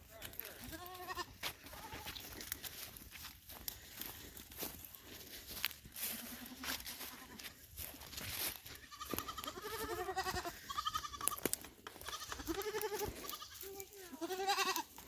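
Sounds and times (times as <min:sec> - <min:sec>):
goats bleating: 0:00.2 - 0:02.4, 0:05.9 - 0:07.6, 0:08.6 - 0:15.0.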